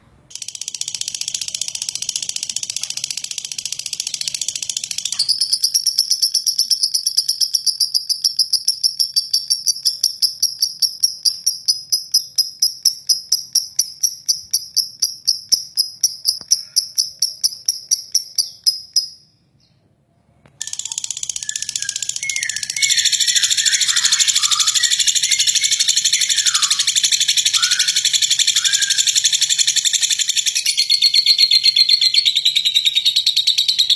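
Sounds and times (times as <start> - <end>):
lovebird rattling trill: 0.3 - 19.2, 20.6 - 33.9
lower bird chirps: 0.3 - 19.8, 20.6 - 33.9.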